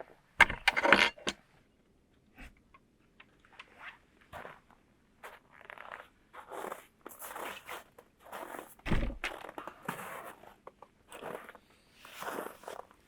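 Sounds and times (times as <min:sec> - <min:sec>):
heavy thump: 0:08.9 - 0:09.2.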